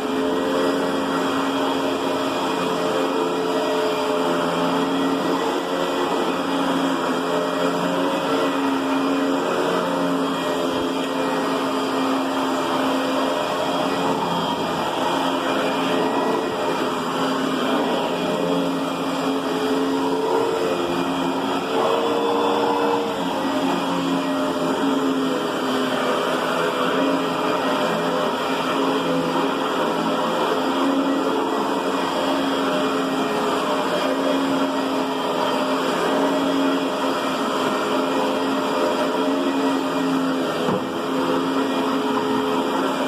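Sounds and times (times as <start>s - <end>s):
vacuum cleaner running: 0.0s - 43.0s.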